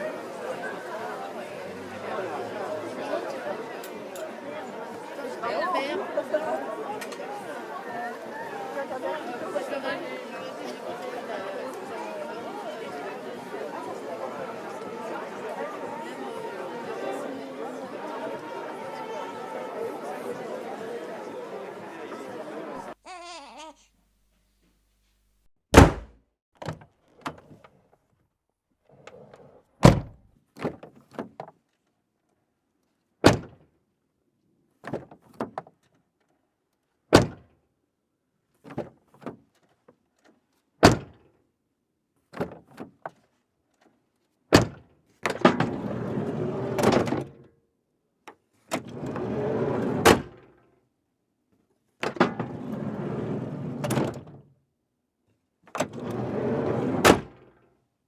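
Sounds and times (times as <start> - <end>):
doors slamming: 25.8 - 26.1.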